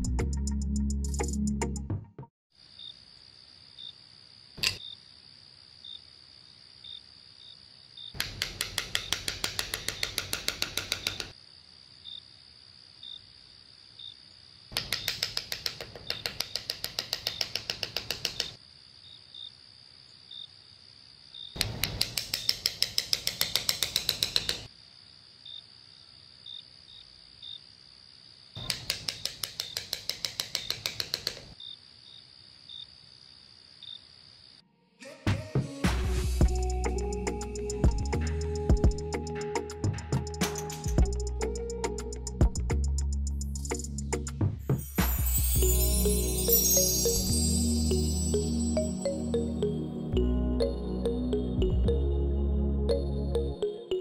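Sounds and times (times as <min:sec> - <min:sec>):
crickets trilling: 0:02.5 - 0:34.7, 0:45.0 - 0:49.3
rapid loud insect pulsing: 0:02.6 - 0:34.6.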